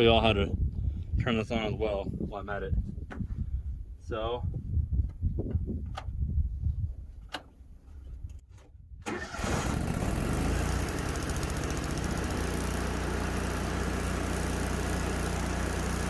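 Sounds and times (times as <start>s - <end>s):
welding machine humming: 10.4s - 16.0s.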